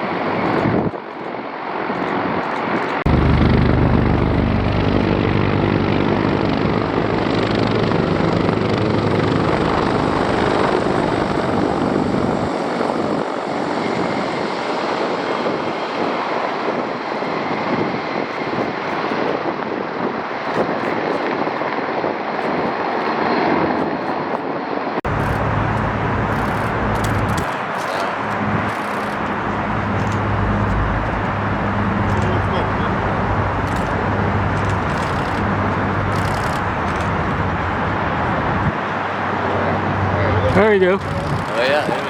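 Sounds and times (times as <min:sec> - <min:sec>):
aircraft engine drone: 0:00.0 - 0:19.0, 0:25.1 - 0:42.0
constant rushing noise: 0:00.0 - 0:42.0.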